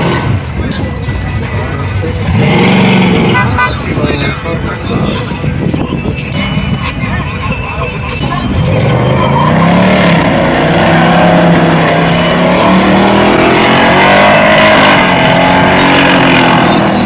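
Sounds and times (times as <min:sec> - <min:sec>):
tires spinning: 0:00.0 - 0:17.0
car engine revving high: 0:02.2 - 0:03.7, 0:08.5 - 0:17.0.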